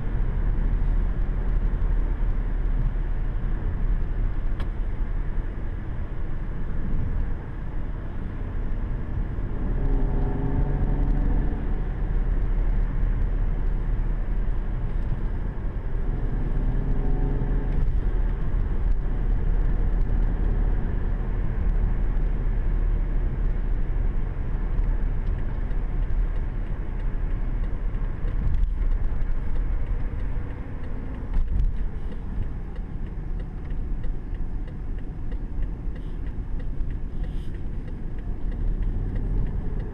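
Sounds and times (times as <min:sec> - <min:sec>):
car engine at speed: 0:00.0 - 0:39.9
road and wind noise: 0:00.0 - 0:39.9.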